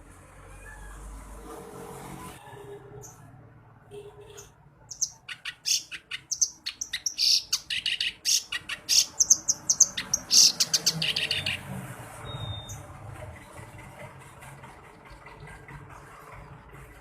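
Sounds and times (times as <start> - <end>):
reed warbler chattering song: 4.9 - 11.6.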